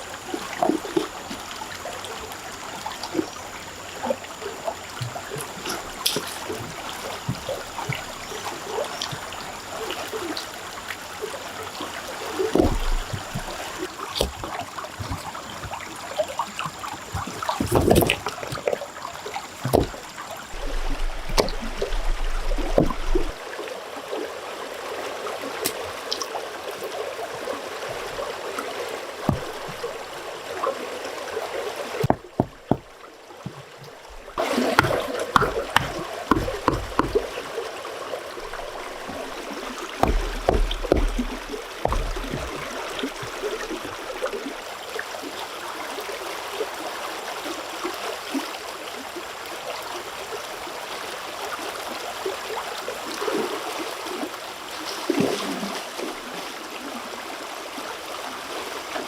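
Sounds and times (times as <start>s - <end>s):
stream water running: 0.0s - 59.0s
knocks and thuds: 12.5s - 15.8s, 19.7s - 20.0s, 20.6s - 23.4s, 29.3s - 30.0s, 32.0s - 37.4s, 40.0s - 43.5s.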